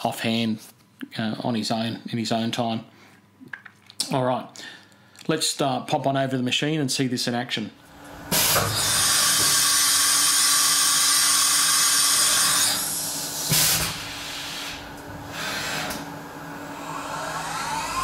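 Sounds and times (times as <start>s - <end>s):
compressed air hissing: 8.2s - 18.0s
short sharp air blast: 8.3s - 16.0s
low machine hum: 12.1s - 18.0s.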